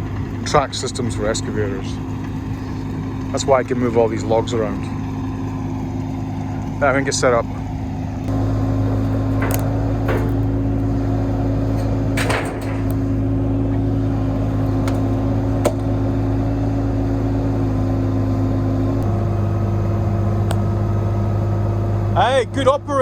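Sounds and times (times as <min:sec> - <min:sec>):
excavator diesel engine running: 0:00.0 - 0:23.0
sharp metal clanks: 0:08.3 - 0:13.3.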